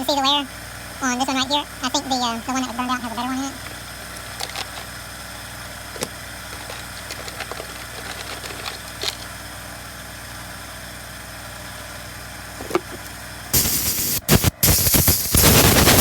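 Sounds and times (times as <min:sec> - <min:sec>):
steady mechanical hum: 0:00.0 - 0:16.0
small metal parts clicking: 0:03.6 - 0:05.0, 0:05.9 - 0:09.3
loud hissing noise: 0:13.5 - 0:16.0.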